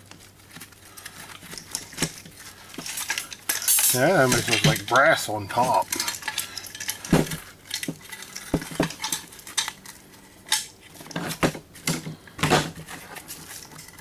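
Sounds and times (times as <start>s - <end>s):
metal parts and tools clinking: 1.5s - 12.0s.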